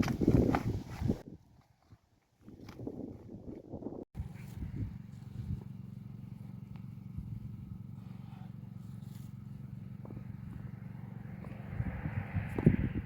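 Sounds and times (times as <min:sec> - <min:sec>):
engine humming: 0:04.2 - 0:13.0.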